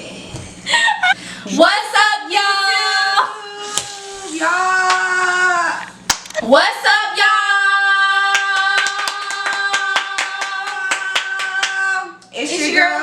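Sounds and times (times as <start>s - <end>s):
hands clapping quickly: 6.1s - 6.4s, 8.3s - 11.8s.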